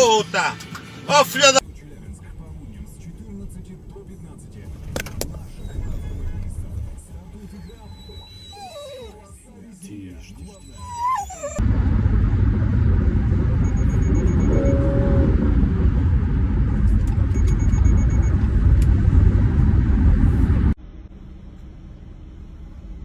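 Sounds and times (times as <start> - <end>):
traffic noise: 0.0 - 9.4, 10.3 - 23.0
car road and engine rumble: 0.0 - 23.0
brief rising and falling tone: 11.4 - 20.8.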